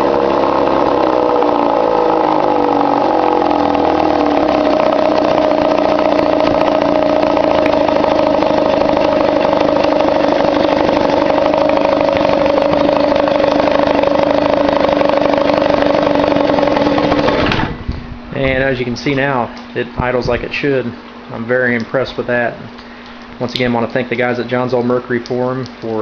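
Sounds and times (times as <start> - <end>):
outboard motor idling: 0.0 - 19.0.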